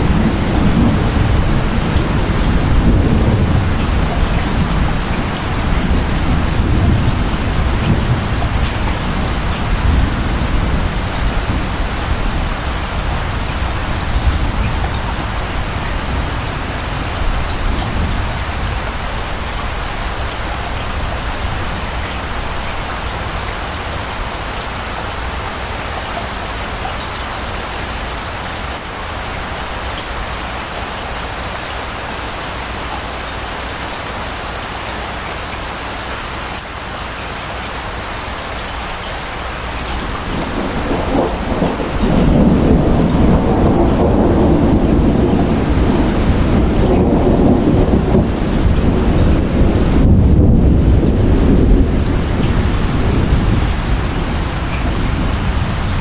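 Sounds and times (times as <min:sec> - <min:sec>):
distant thunder rumble: 0:00.0 - 0:26.8, 0:39.5 - 0:56.0
steady rain: 0:00.0 - 0:56.0.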